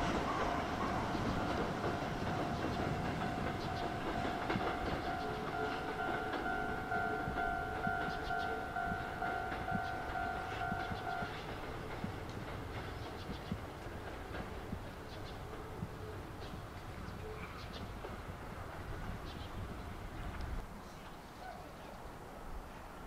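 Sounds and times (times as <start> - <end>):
train rumbling over rail joints: 0.0 - 20.7
level crossing alarm ringing: 0.1 - 11.4.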